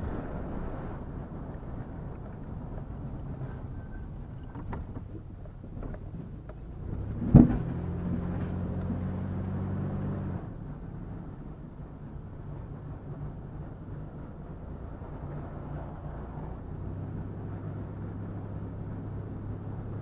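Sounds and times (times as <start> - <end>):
low engine hum: 0.0 - 20.0
road noise inside moving vehicle: 0.0 - 20.0
sharp thump: 7.2 - 7.7.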